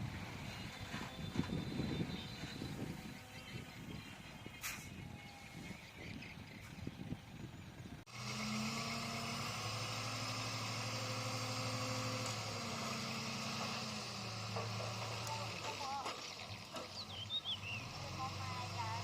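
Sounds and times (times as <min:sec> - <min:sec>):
heavy diesel engine running: 0:06.9 - 0:19.0.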